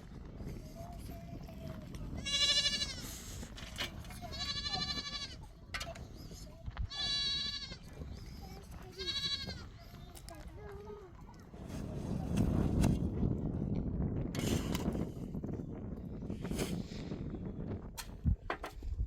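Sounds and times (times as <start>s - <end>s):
goat bleating: 2.2s - 3.2s, 4.2s - 5.5s, 6.9s - 8.0s, 8.9s - 9.8s.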